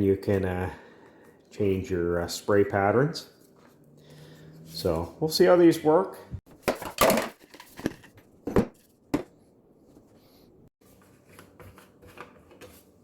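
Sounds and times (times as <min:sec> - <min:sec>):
objects knocking and rustling: 0:06.5 - 0:10.1.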